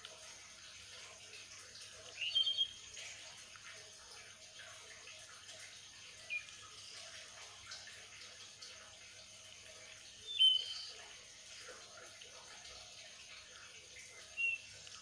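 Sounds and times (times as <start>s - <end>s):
bird chirping: 2.1s - 2.8s, 6.2s - 7.0s, 10.2s - 11.0s, 14.3s - 14.8s.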